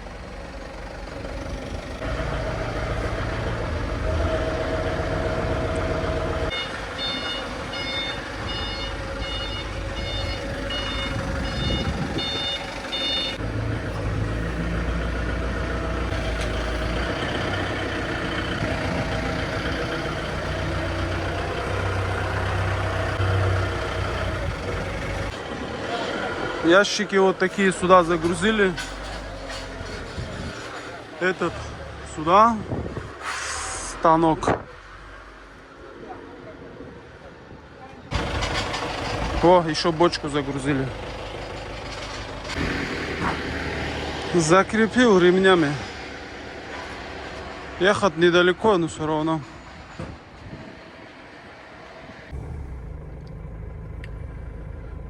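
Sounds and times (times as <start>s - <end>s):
vehicle engine running: 0.0s - 32.3s, 38.1s - 47.8s, 52.3s - 55.0s
reversing alarm beeping: 6.5s - 13.4s.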